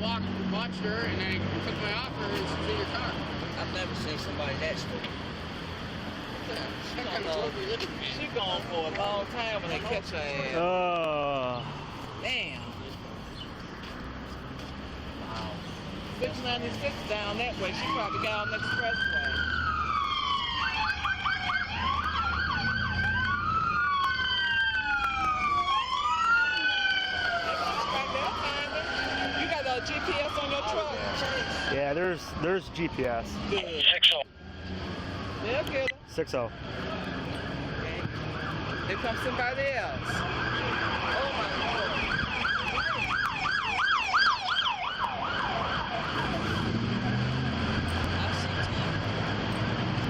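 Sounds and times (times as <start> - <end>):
police sirens wailing: 0.0 - 13.0, 14.6 - 50.0
siren yelps: 17.5 - 31.8, 32.4 - 49.8.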